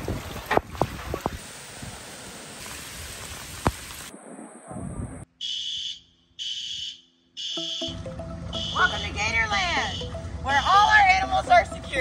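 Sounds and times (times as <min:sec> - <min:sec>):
heavy rain and wind: 0:00.0 - 0:05.3
high electronic alarm beep: 0:05.4 - 0:11.1.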